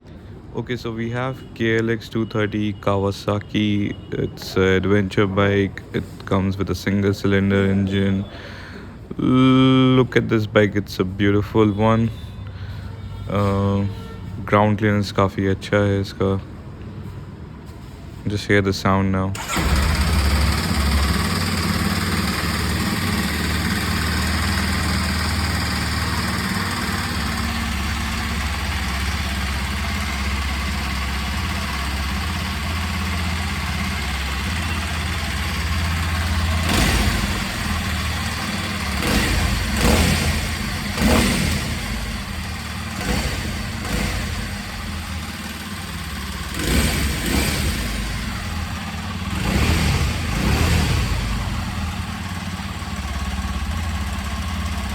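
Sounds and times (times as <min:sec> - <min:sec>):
motorcycle engine idling and revving: 0:19.4 - 0:54.9.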